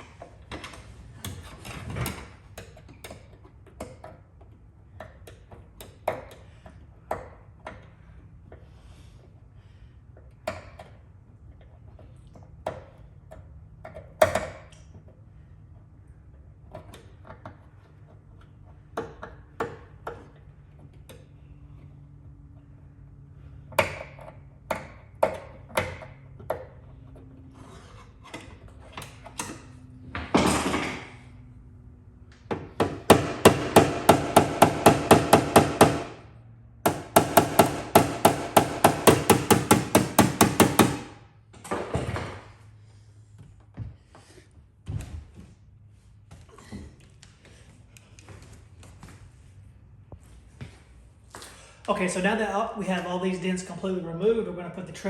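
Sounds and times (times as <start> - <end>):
hammer tapping on sheet metal: 32.5 - 36.2, 36.9 - 41.2.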